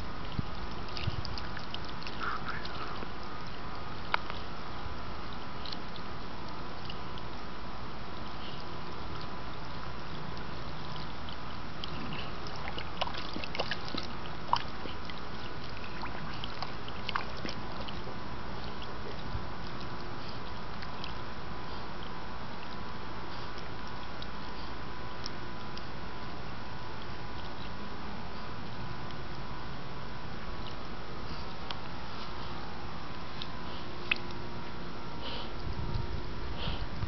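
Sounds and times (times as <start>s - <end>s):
steady background hiss: 0.0s - 37.0s
water sloshing and trickling: 0.0s - 37.0s
sharp water splashes: 8.9s - 21.4s.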